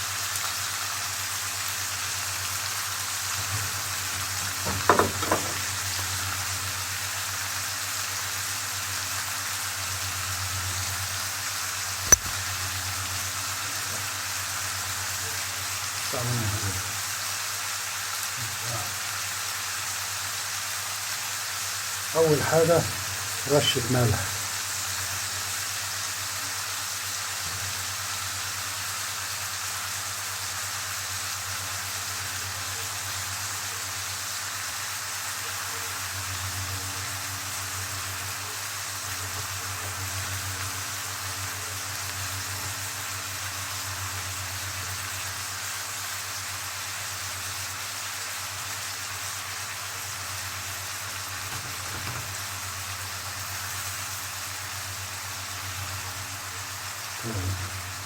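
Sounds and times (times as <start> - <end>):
seafood frying in hot oil: 0.0 - 58.0.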